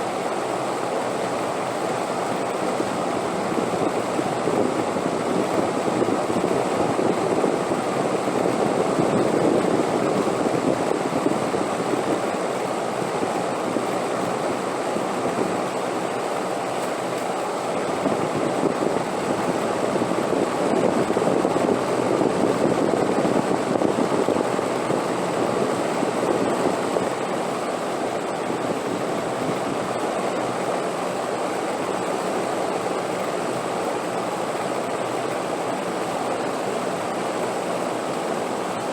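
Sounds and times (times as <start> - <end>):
wind blowing in a deep rush: 17.9 - 30.0.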